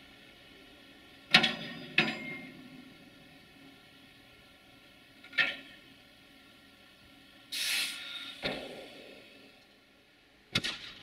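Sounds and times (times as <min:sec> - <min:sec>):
train wagon clank: 0:01.3 - 0:02.5
brake air hiss: 0:07.5 - 0:09.5.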